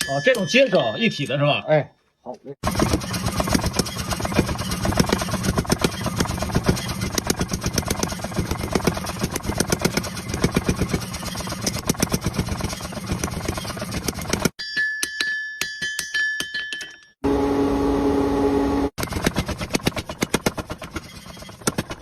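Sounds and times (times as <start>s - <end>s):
machine running noise: 2.6s - 14.6s, 17.2s - 22.0s
power hammer pounding hot steel: 2.6s - 14.6s, 18.9s - 22.0s.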